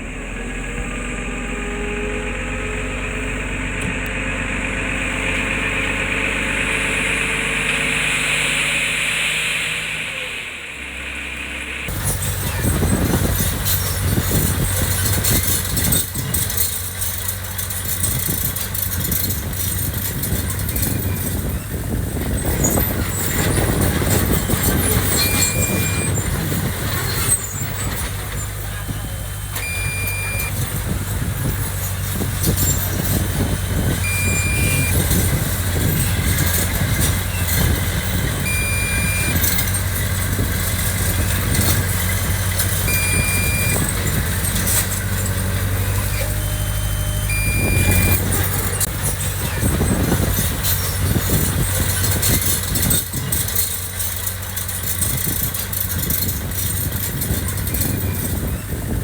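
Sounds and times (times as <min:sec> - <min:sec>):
diesel engine running: 0:00.0 - 0:59.0
metallic clanking and rattling: 0:11.9 - 0:59.0
high warning beep: 0:25.1 - 0:26.2, 0:29.6 - 0:30.6, 0:34.0 - 0:35.2, 0:38.4 - 0:39.6, 0:42.8 - 0:43.9, 0:46.0 - 0:48.9.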